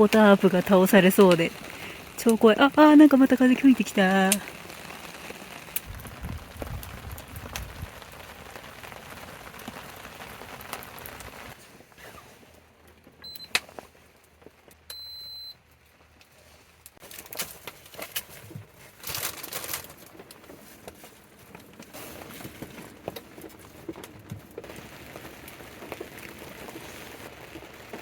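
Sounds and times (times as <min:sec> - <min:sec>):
steady rain: 0:00.0 - 0:11.8, 0:19.2 - 0:28.0
wind gusts rumbling: 0:05.7 - 0:09.5.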